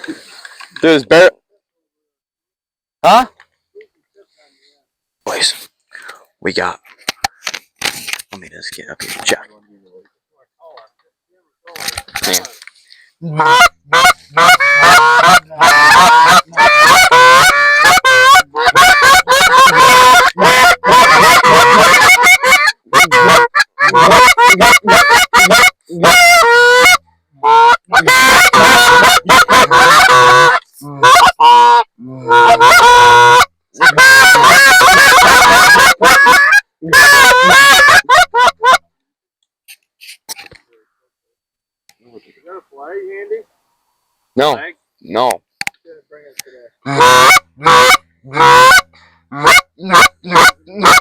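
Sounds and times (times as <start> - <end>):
goose honking: 13.4 - 38.8, 46.8 - 51.0.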